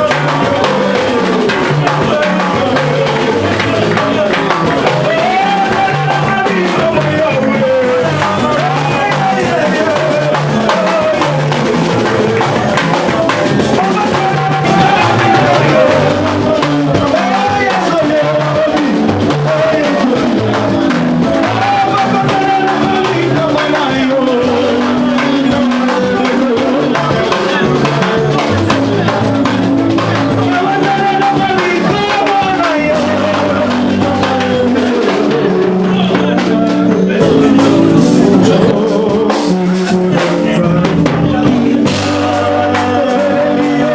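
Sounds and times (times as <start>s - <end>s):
bass line: 0.0s - 43.9s
drum kit: 0.0s - 43.9s
gliding melody line: 14.6s - 16.8s, 35.8s - 39.1s.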